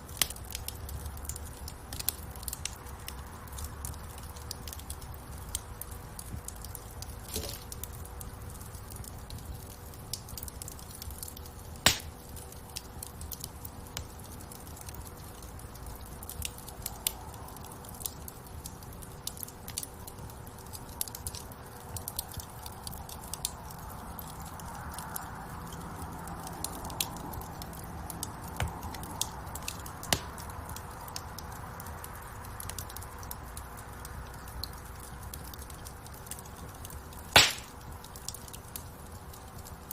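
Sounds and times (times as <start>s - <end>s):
low rumble of flames: 0.0s - 39.9s
wood fire crackling: 0.0s - 39.9s
loud pop of fire: 11.8s - 12.2s, 37.3s - 37.8s.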